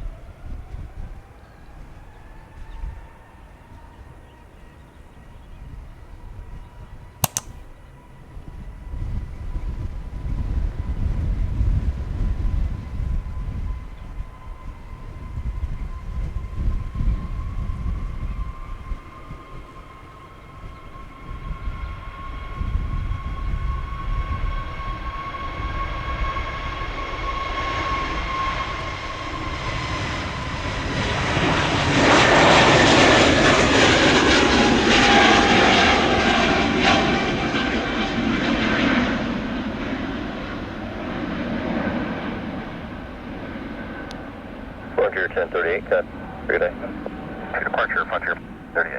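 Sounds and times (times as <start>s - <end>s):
jet engine high whine: 15.9s - 48.9s
jet engine roar: 39.3s - 48.9s.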